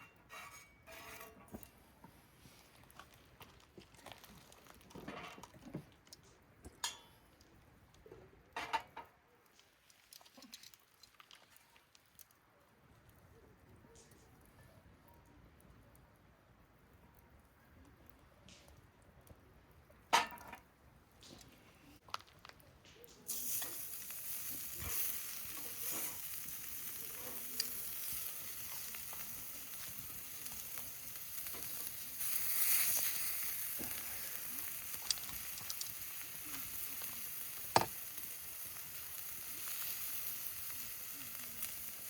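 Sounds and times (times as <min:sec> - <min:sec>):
steak sizzling on griddle: 0:23.3 - 0:42.0.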